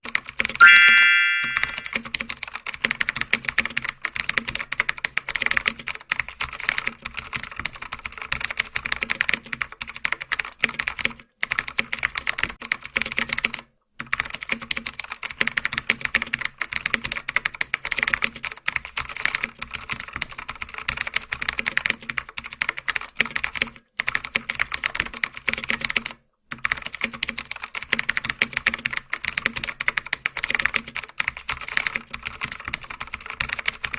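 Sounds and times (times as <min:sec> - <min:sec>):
rapid keyboard typing: 0:00.0 - 0:33.9.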